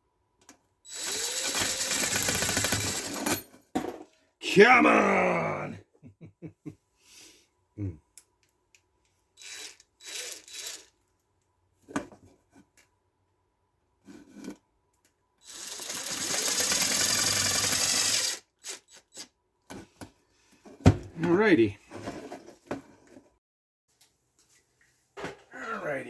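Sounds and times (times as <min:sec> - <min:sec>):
power drill running: 0:00.9 - 0:03.2, 0:09.4 - 0:10.9, 0:15.4 - 0:19.0
parts scraping and clicking: 0:08.2 - 0:11.2.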